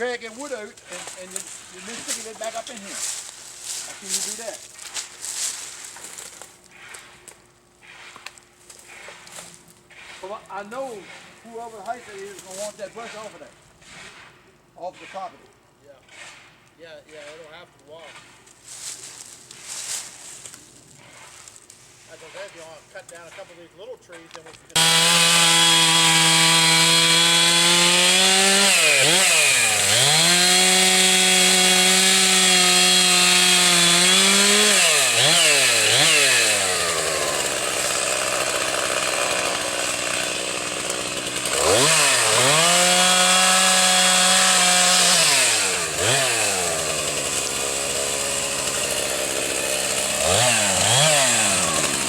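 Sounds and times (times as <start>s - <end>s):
chainsaw engine revving: 24.7s - 52.0s.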